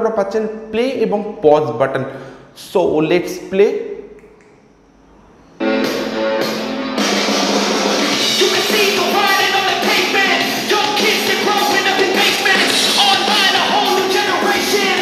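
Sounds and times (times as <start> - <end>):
song through small speaker: 5.6 - 15.0
singing vocals: 8.2 - 15.0.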